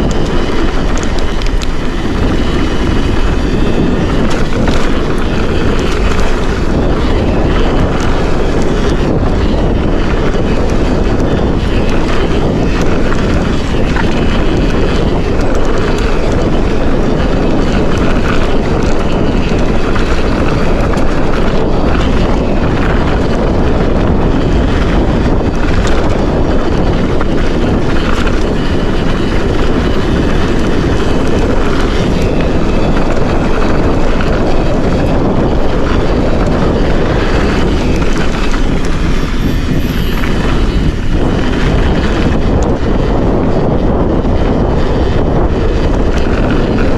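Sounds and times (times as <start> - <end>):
bike tyres rumbling on dirt: 0.0 - 46.9
wind on microphone: 0.0 - 46.9.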